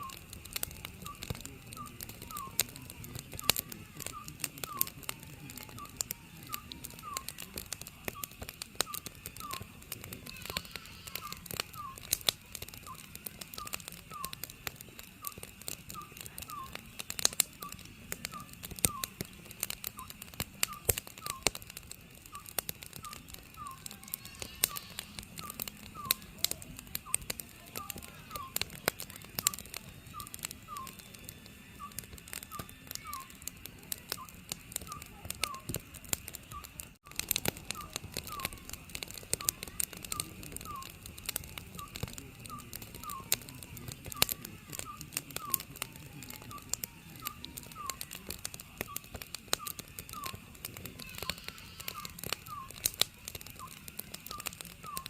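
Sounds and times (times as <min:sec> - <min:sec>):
wood fire crackling: 0:00.0 - 0:55.0
owl hooting: 0:05.8 - 0:12.2, 0:12.8 - 0:14.5, 0:22.3 - 0:31.0, 0:37.6 - 0:38.7, 0:39.4 - 0:41.0, 0:46.5 - 0:48.1, 0:48.8 - 0:52.9, 0:53.5 - 0:55.0.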